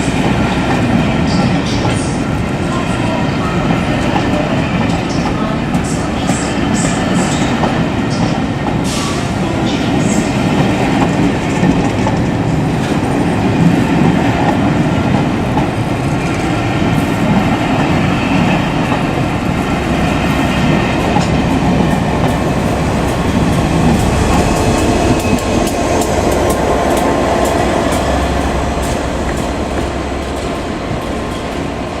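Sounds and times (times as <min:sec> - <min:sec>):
train rumbling: 0:00.0 - 0:32.0
train wheels clicking over rail joints: 0:20.2 - 0:32.0.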